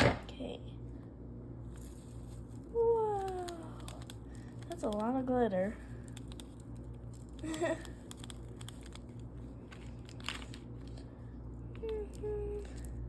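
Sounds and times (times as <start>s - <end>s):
handling crinkles and clicks: 1.7s - 13.0s
sharp crackle: 5.9s - 10.6s.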